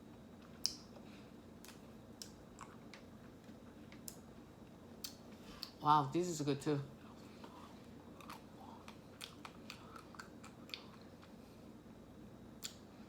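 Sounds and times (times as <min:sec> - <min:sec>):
person chewing crunchy ice cream: 0:07.5 - 0:11.4
wet mouth clicks: 0:12.6 - 0:12.8.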